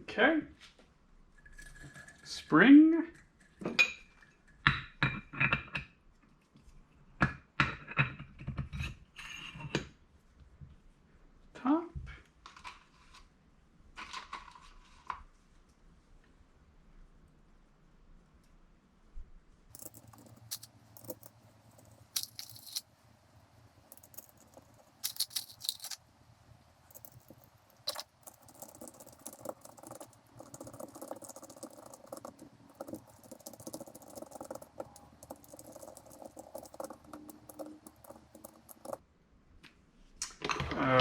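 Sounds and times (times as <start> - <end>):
small scrapes: 12.4 - 13.3, 14.0 - 15.3, 19.9 - 22.9, 24.2 - 26.0
small metal parts clicking: 19.7 - 22.9, 23.9 - 26.0, 26.9 - 39.0.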